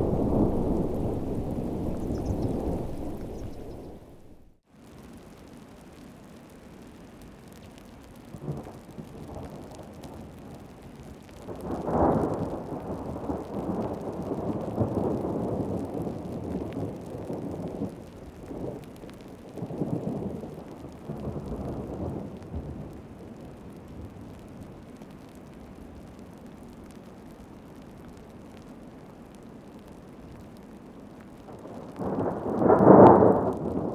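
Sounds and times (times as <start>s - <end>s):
rolling thunder: 0.0s - 4.6s, 32.0s - 33.9s
heavy rain falling: 0.0s - 33.9s.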